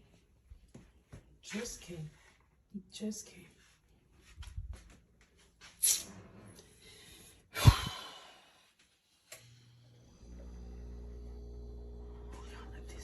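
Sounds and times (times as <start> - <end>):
low electrical hum: 9.2 - 13.0.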